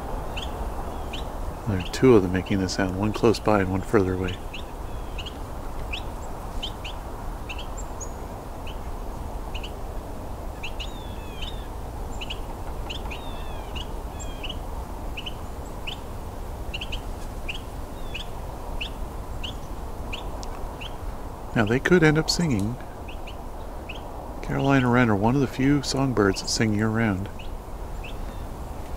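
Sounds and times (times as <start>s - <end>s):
wrens calling: 0.0s - 28.9s.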